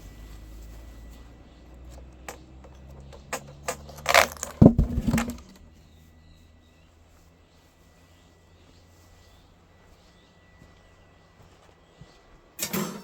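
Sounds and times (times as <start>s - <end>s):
knocks and clatter: 1.9s - 5.6s
heavy thuds: 3.9s - 5.6s.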